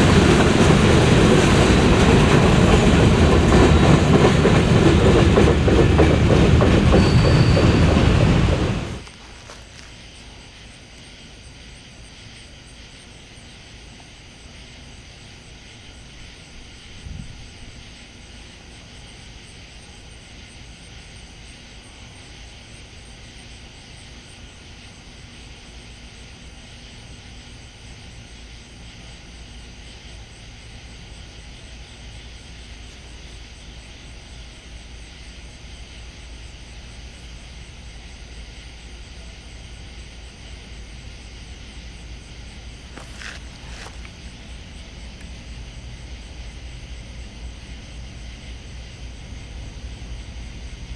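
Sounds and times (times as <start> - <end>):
night insects trilling: 0.0 - 50.9.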